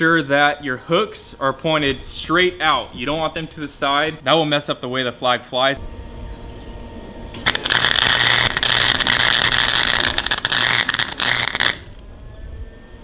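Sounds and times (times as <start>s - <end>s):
welder arc crackling: 7.4s - 12.1s.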